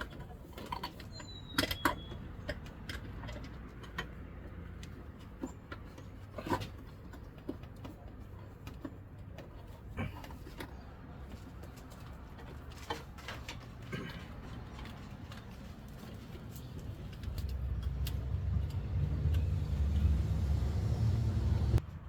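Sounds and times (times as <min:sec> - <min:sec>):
low steady rumble: 0:16.6 - 0:21.8.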